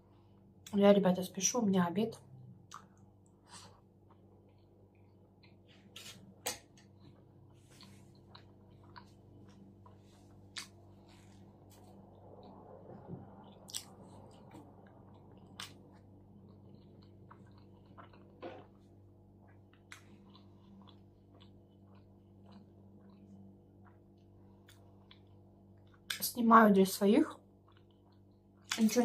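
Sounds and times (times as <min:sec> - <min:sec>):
faint low hum: 0:00.0 - 0:29.0
person chewing food: 0:02.6 - 0:26.2, 0:27.5 - 0:28.8.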